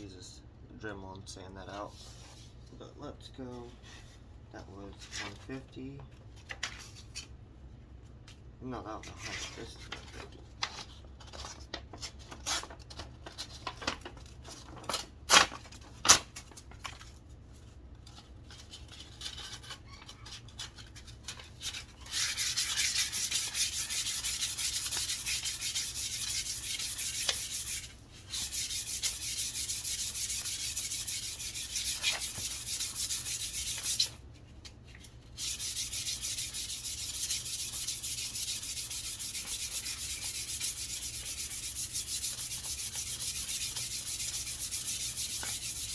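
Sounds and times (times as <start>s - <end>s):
sandpaper rubbing on wood: 22.1s - 34.2s, 35.4s - 45.9s.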